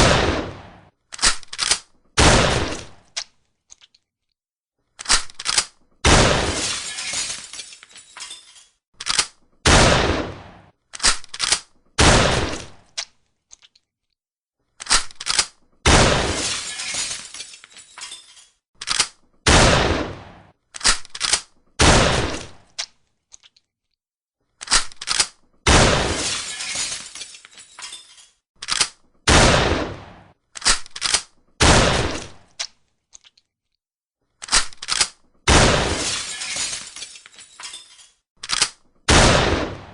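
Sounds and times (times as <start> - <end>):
shotgun blasts: 0.0 - 0.9, 2.2 - 3.0, 6.0 - 6.6, 9.6 - 10.7, 12.0 - 12.8, 15.9 - 16.5, 19.5 - 20.5, 21.8 - 22.6, 25.7 - 26.2, 29.3 - 30.3, 31.6 - 32.4, 35.5 - 36.0, 39.1 - 39.9
shotgun reloading clicks: 1.1 - 1.9, 5.0 - 5.8, 9.0 - 9.4, 11.0 - 11.7, 14.8 - 15.6, 18.8 - 19.2, 20.8 - 21.5, 24.6 - 25.4, 28.6 - 29.0, 30.6 - 31.3, 34.4 - 35.2, 38.4 - 38.9.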